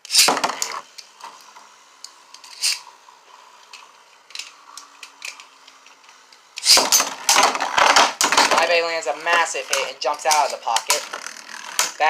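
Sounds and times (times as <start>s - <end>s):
spinning tops whining: 0.0s - 12.0s
spinning tops clicking together: 2.0s - 2.9s.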